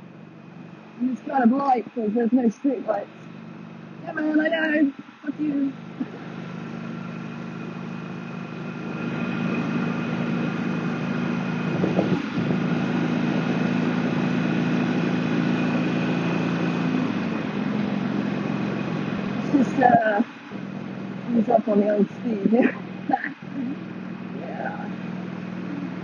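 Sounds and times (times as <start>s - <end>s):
motorcycle engine running: 0.0s - 26.0s
wind rush on helmet: 11.6s - 13.6s.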